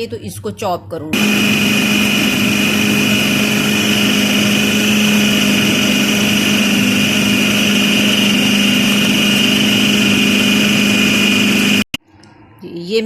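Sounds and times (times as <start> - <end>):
food chopper motor whine: 1.2 - 11.9.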